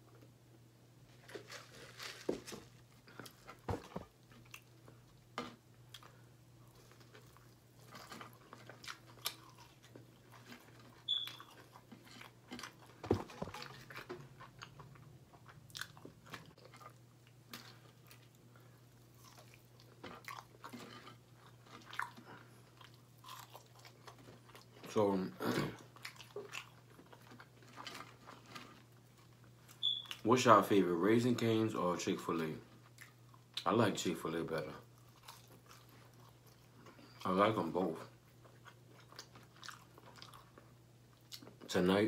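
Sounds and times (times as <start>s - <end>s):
faint low hum: 0.0s - 42.0s
chewing crispy fried chicken: 4.2s - 25.0s, 25.6s - 30.2s, 32.6s - 33.8s, 34.8s - 41.7s.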